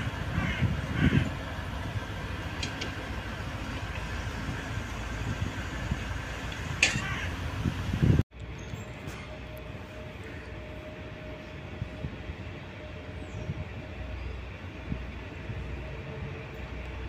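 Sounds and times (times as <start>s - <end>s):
train engine rumble: 0.0s - 17.0s
knocks and clanks: 6.5s - 7.2s.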